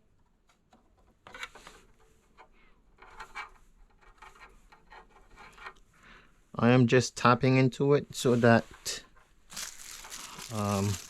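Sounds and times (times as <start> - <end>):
wires rubbing and scratching: 9.5 - 11.0.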